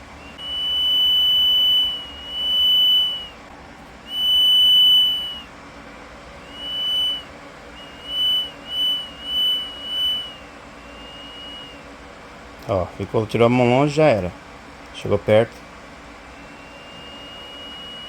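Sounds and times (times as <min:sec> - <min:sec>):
buzzer high tone: 0:00.2 - 0:03.4, 0:04.0 - 0:05.5, 0:06.4 - 0:11.8, 0:16.4 - 0:18.0.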